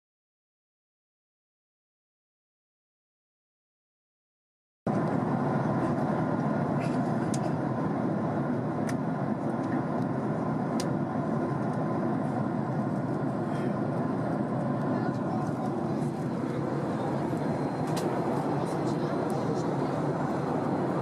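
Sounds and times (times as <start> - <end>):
airliner cabin engine noise: 4.9 - 21.0.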